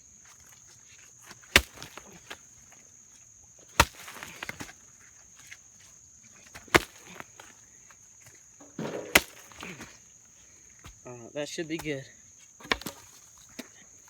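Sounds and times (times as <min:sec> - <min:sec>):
loose dirt rattling: 0:00.0 - 0:14.0
pickaxe striking ground: 0:01.2 - 0:02.6, 0:03.7 - 0:05.6, 0:06.4 - 0:07.6, 0:08.6 - 0:10.0, 0:11.8 - 0:12.0, 0:12.6 - 0:13.7.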